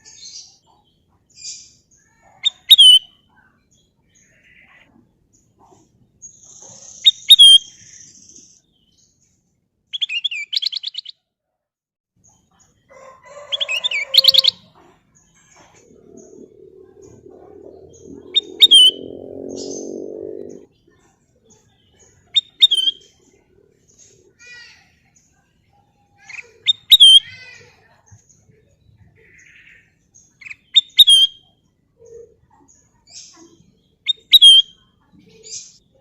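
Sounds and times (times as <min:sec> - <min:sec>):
bulbul singing: 0:15.6 - 0:20.7, 0:21.9 - 0:23.3
low droning sound: 0:15.6 - 0:20.7.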